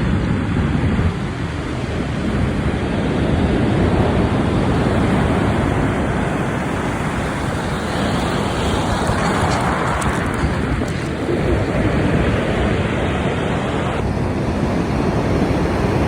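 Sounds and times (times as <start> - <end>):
sea surf washing on shore: 0.0 - 16.0
wind rumbling on microphone: 0.0 - 16.0.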